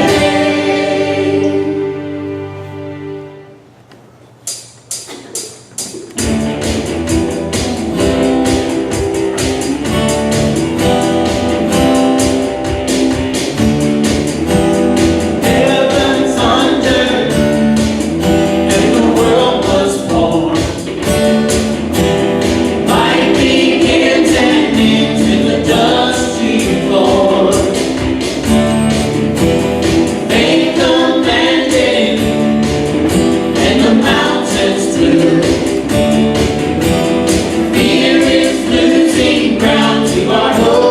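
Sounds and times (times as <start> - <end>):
band playing steady beat: 0.0 - 2.4, 3.9 - 40.9
group singing: 0.0 - 2.4, 15.0 - 21.6, 22.4 - 28.4, 29.4 - 40.9.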